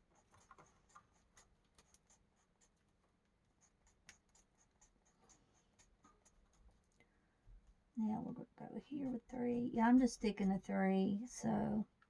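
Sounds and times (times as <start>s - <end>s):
coloring tool scratching on paper: 0.0s - 6.9s.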